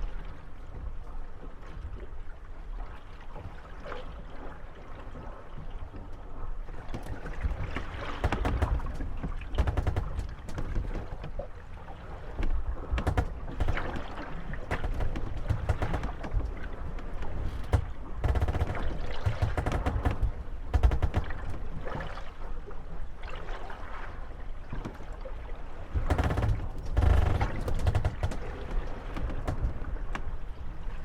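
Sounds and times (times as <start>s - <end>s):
small waves washing: 2.8s - 31.0s
wooden boat hulls knocking: 6.8s - 11.5s, 12.3s - 22.2s, 25.9s - 30.2s.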